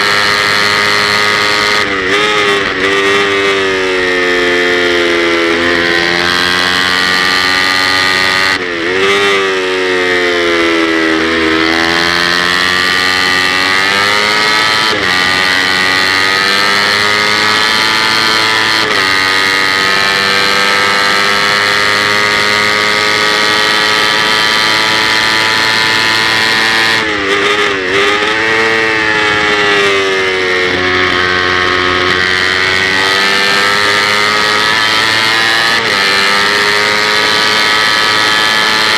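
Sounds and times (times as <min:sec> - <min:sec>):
motorcycle engine at high revs: 0:00.0 - 0:38.9.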